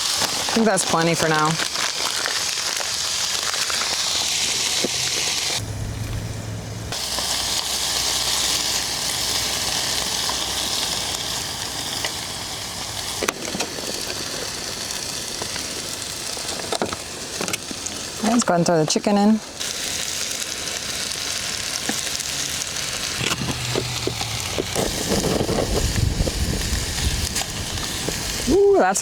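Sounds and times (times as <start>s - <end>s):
food sizzling in a pan: 0.0s - 5.8s, 6.9s - 29.0s
low rumble: 5.0s - 7.0s, 23.1s - 28.5s.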